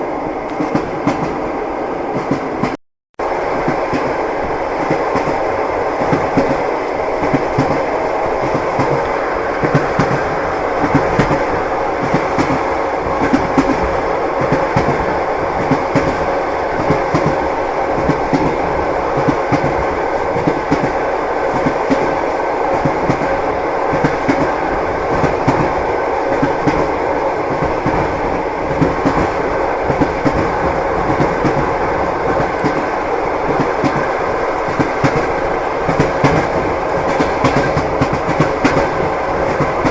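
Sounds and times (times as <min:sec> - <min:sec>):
train wheels clacking over rails: 0:00.5 - 0:01.5, 0:02.1 - 0:02.8, 0:03.4 - 0:39.9.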